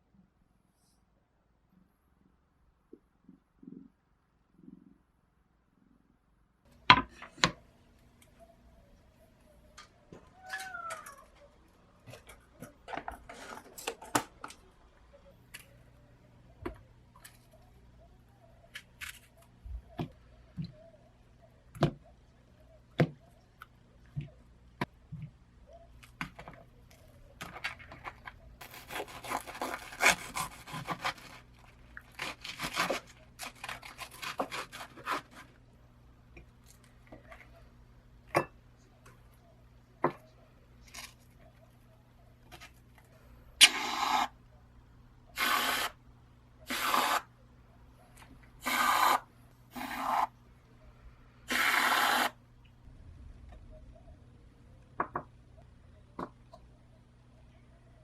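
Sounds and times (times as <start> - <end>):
scraping and rubbing: 27.4 - 35.6.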